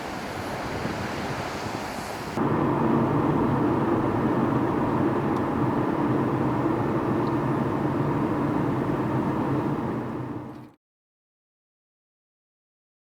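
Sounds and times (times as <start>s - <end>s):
vehicle engine humming: 2.3s - 10.8s.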